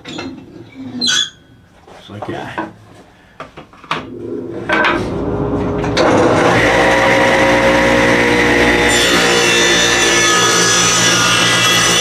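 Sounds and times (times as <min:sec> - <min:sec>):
electric power saw whining: 0:04.2 - 0:12.0
saw blade cutting wood: 0:04.8 - 0:12.0.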